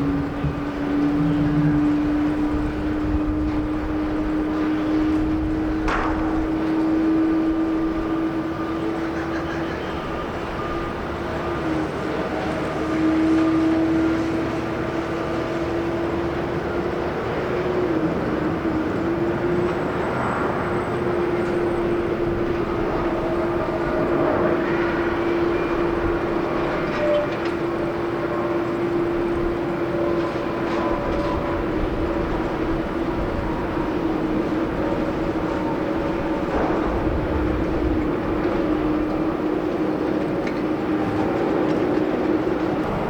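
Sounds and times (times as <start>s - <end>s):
wind rumble: 0.0s - 9.1s, 17.8s - 26.9s, 27.5s - 43.0s
jet engine whine: 0.0s - 43.0s.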